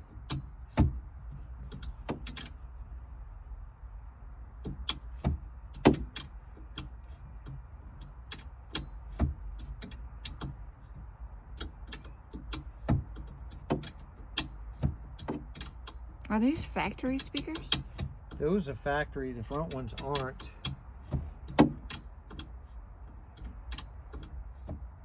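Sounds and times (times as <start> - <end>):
sharp clicks and knocks: 0.0 - 2.7, 4.6 - 18.6, 19.4 - 25.0
low steady rumble: 0.0 - 25.0
loud thunks: 0.3 - 1.0, 21.0 - 22.0.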